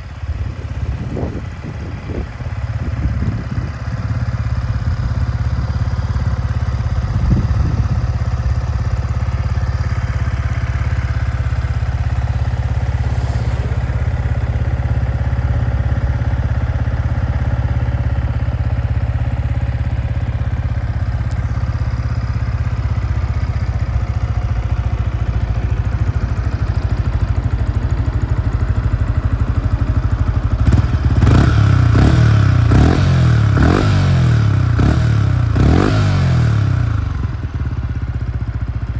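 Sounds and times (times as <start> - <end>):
motorcycle engine idling: 0.0 - 38.9
motorcycle engine revs: 10.5 - 16.6, 30.6 - 37.8.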